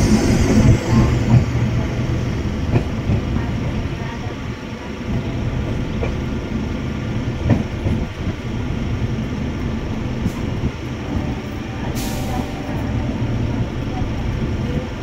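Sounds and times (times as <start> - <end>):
train wheels rumbling: 0.0 - 15.0
clacks over rail joints: 7.4 - 8.5.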